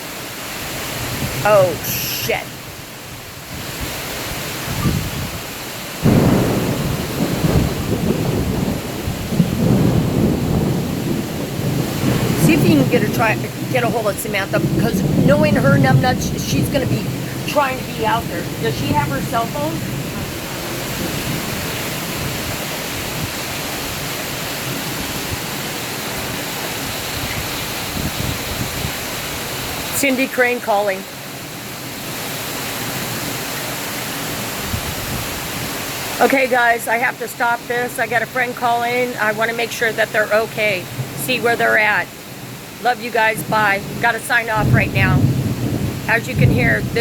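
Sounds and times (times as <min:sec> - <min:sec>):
rain hissing: 0:00.0 - 0:47.0
thunderclap rumbling: 0:00.8 - 0:32.0, 0:34.4 - 0:47.0.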